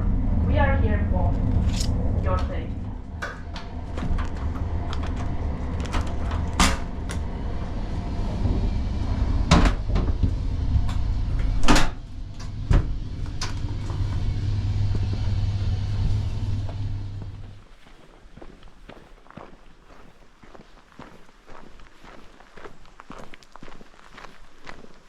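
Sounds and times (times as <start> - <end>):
train carriage rumble: 0.0 - 17.8.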